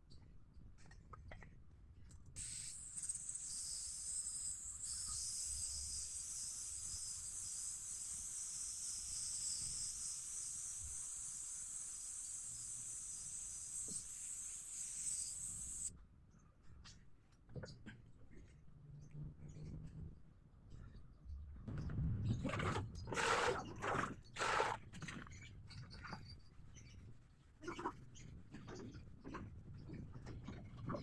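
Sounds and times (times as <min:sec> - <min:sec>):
steady high-pitched hiss: 0:02.4 - 0:15.9.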